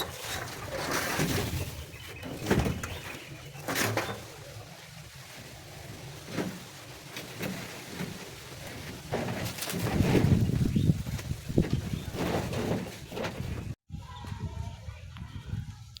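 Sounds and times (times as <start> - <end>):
knocks and clatters: 6.1 - 13.8.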